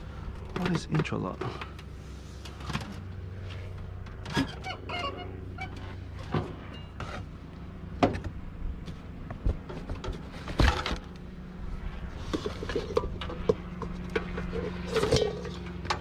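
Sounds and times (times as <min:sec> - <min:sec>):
knocks of things handled: 0:08.0 - 0:11.2.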